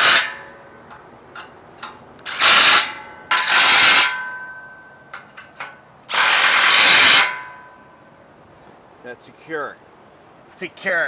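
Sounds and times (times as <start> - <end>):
power tool tightening bolts: 0.0 - 0.4, 1.4 - 4.2, 5.4 - 7.5
steel frame ringing: 0.0 - 8.2.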